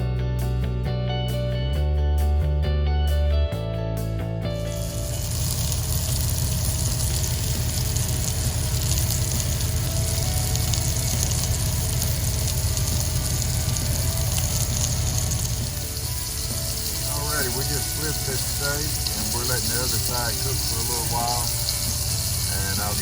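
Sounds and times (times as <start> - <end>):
low hum: 4.5 - 23.0
steak sizzling in a skillet: 4.7 - 23.0.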